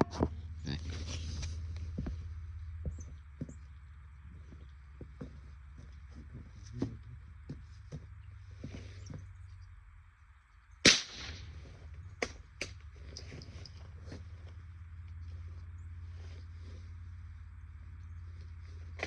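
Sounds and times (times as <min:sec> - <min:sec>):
gunshot: 0:10.8 - 0:11.6
faint clicks and rustles: 0:11.4 - 0:19.0.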